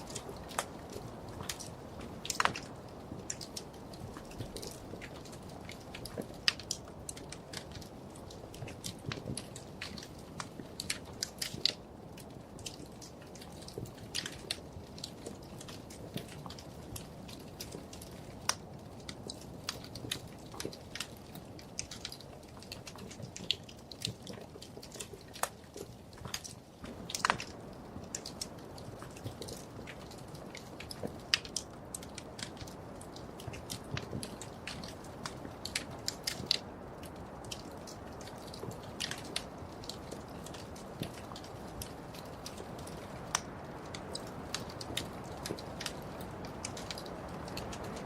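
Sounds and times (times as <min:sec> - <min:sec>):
wood fire crackling and popping: 0:00.0 - 0:48.0.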